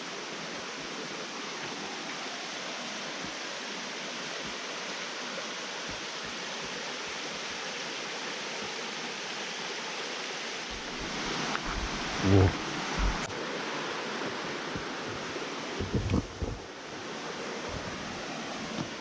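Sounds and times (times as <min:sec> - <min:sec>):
stream flowing: 0:00.0 - 0:19.0
faint low thumps: 0:10.7 - 0:13.3, 0:15.8 - 0:16.7.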